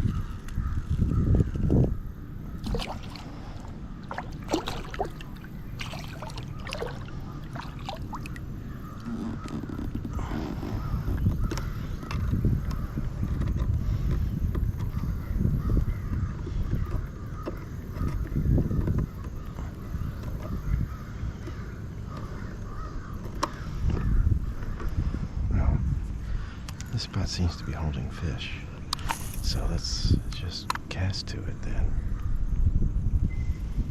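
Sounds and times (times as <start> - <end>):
wind buffeting microphone: 0.0 - 33.9
water sloshing around a kayak: 2.5 - 24.9
water drips: 4.0 - 8.5.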